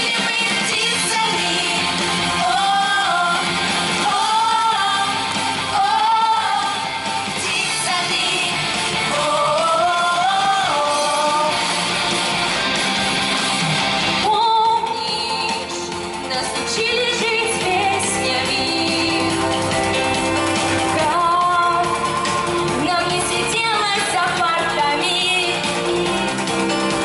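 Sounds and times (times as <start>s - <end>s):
person singing: 0.0s - 12.5s, 13.6s - 27.0s
guitar accompaniment: 0.0s - 27.0s.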